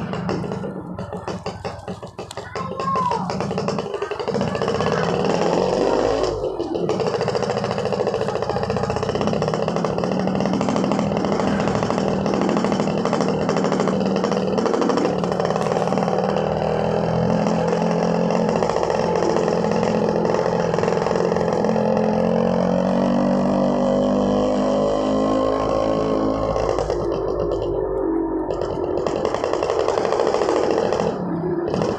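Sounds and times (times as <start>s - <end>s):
two-stroke motorcycle engine: 0.0s - 31.9s.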